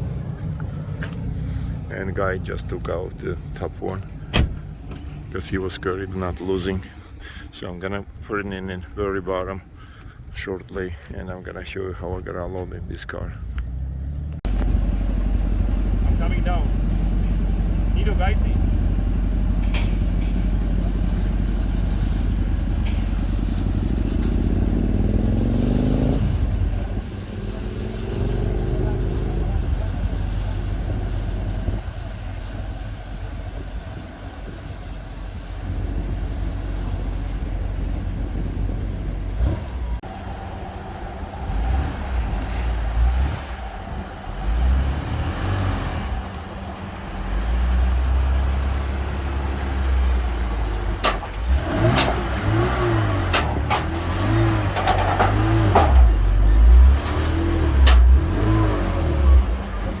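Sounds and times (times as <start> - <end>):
race car engine throttle blips: 13.5 - 60.0
metal clanks: 19.5 - 26.2, 50.8 - 58.3.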